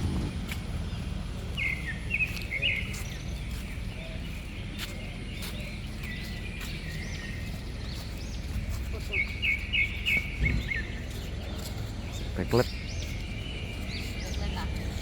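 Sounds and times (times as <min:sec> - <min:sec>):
low rumble: 0:00.0 - 0:02.0.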